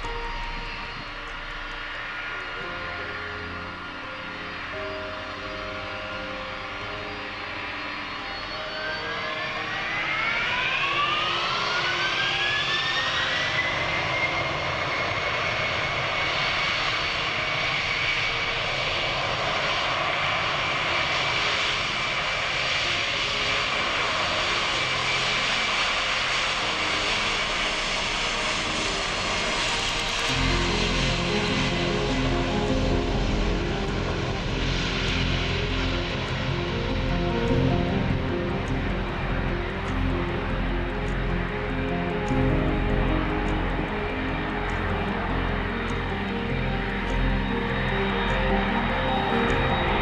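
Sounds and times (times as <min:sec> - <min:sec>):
jet engines spooling up: 0:00.0 - 0:50.0.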